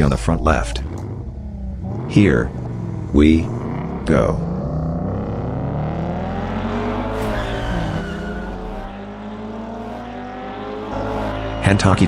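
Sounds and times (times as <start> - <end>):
race car engines revving: 0.0 - 12.0
tire squeal: 6.8 - 9.2.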